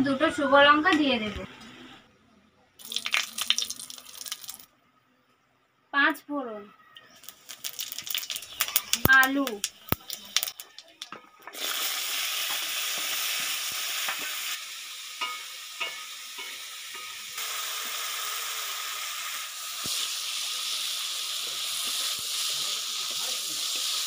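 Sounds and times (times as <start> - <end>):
potatoes sizzling in hot oil: 2.8 - 4.6, 7.1 - 24.0.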